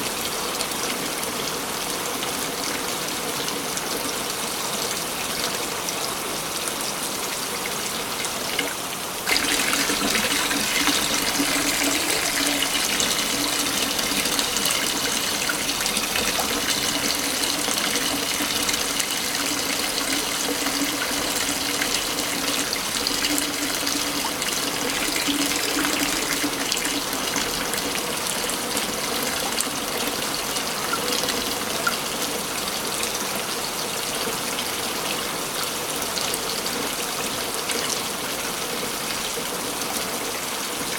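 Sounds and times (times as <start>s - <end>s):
waterfall rushing: 9.3s - 23.2s.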